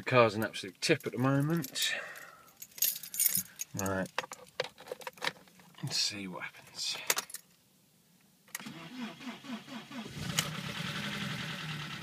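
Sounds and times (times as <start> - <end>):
starter motor cranking: 8.6 - 12.0.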